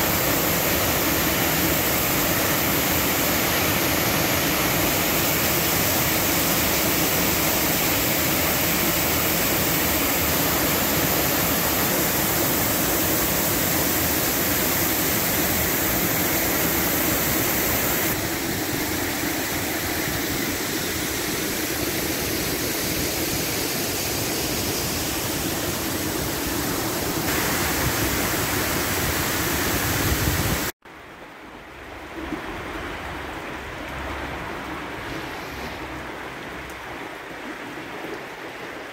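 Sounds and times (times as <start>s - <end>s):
waterfall rushing: 0.0s - 30.7s.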